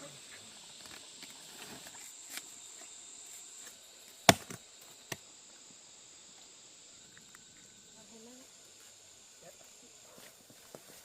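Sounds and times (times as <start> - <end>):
insects droning: 0.0 - 11.0
sharp tool strikes: 4.3 - 4.6.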